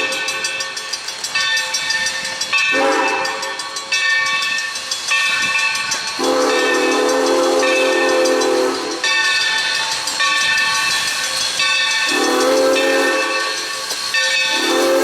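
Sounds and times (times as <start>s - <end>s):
high steam whistle chord: 0.0s - 15.0s
steam hissing: 0.0s - 15.0s
deep steam whistle chime: 2.1s - 4.0s, 6.0s - 15.0s.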